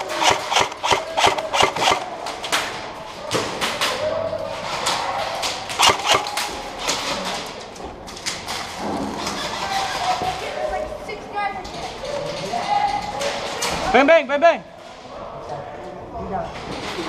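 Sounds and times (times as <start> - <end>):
airsoft guns firing: 0.0 - 2.3, 5.8 - 6.7.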